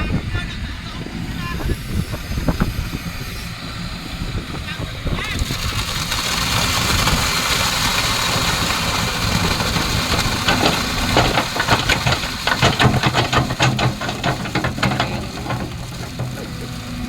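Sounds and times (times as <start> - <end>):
excavator diesel engine running: 6.0 - 17.0
clanks and knocks: 7.9 - 17.0.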